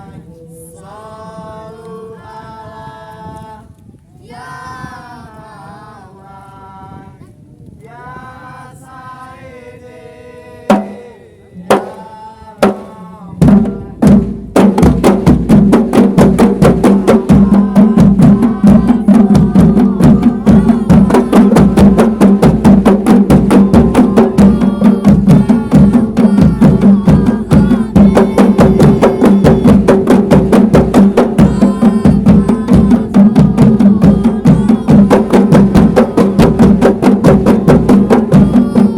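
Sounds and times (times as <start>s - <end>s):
voices singing a chant: 0.0s - 38.9s
hand drums struck: 12.6s - 38.9s.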